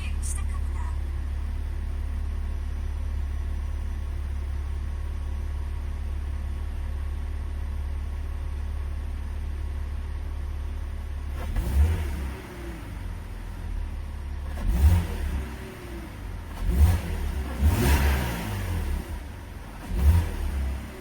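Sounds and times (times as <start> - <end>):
car engine droning and revving: 11.1 - 21.0.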